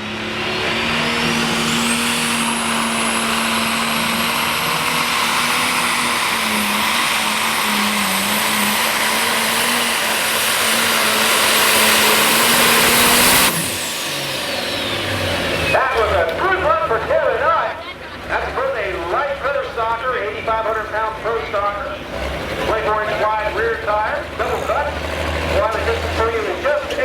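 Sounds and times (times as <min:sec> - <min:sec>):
diesel tractor engine roaring: 0:00.0 - 0:27.0
high turbocharger whine: 0:00.0 - 0:27.0.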